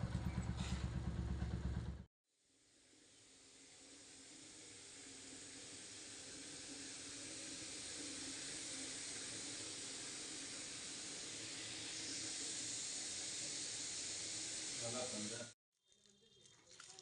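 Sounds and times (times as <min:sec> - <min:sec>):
steady hiss: 0:02.7 - 0:15.6.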